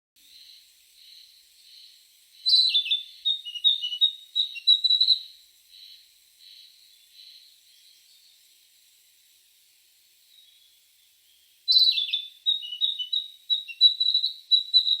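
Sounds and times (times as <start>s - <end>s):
songbird singing: 0.2s - 15.0s.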